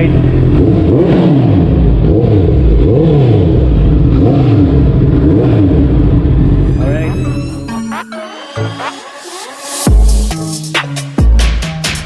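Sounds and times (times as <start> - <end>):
motorcycle engine revving: 0.0 - 6.7.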